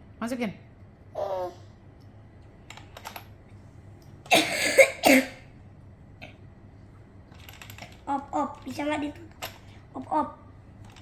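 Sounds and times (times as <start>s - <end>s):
child's voice: 1.2s - 1.7s, 8.1s - 9.3s, 9.9s - 10.5s.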